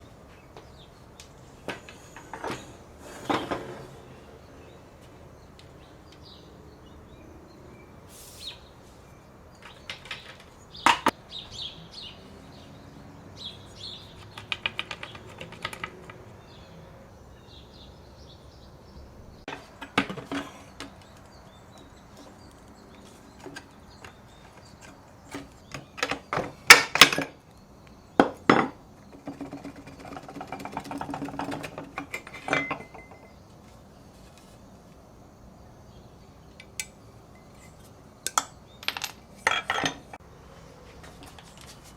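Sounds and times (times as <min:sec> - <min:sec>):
metal tools clinking and knocking: 0:30.4 - 0:33.4, 0:36.6 - 0:40.2.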